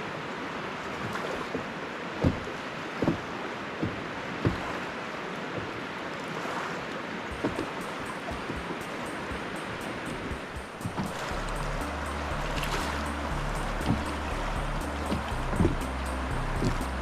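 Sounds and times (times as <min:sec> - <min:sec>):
water rushing: 0:00.0 - 0:17.0
dull low knocks: 0:07.3 - 0:17.0.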